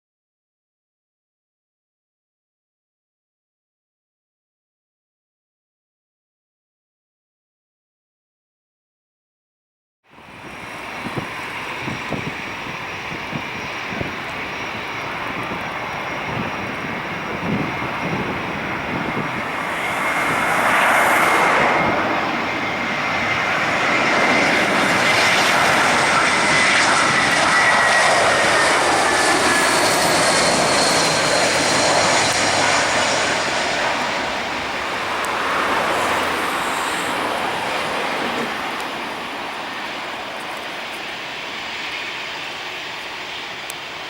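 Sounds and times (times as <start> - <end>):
jet airliner passing by: 10.1 - 44.0.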